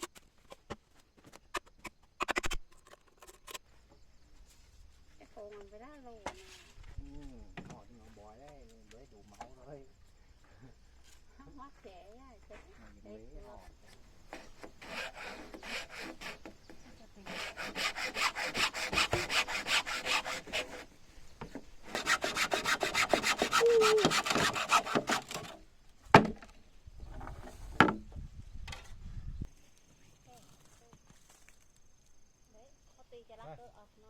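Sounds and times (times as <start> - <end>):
hand saw cutting wood: 13.9 - 20.9, 21.5 - 25.6.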